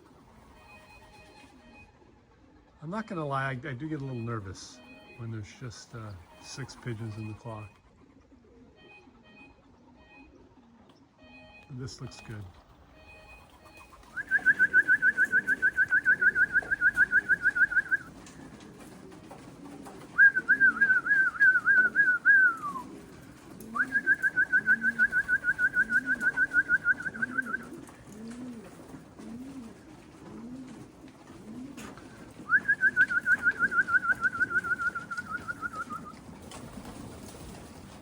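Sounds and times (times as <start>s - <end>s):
pigeons cooing: 0.0s - 3.2s, 4.1s - 11.2s, 11.8s - 38.0s
high whistled trill: 14.1s - 18.1s, 20.2s - 22.9s, 23.8s - 27.7s, 32.5s - 36.1s.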